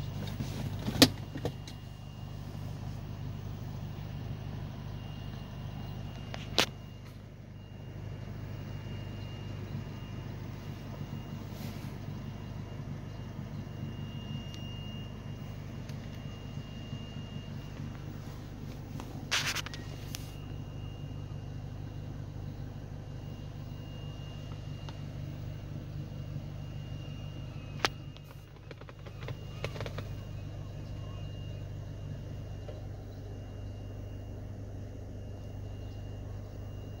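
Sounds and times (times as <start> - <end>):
car engine idling: 0.0 - 37.0
sharp clicks and knocks: 27.8 - 30.1.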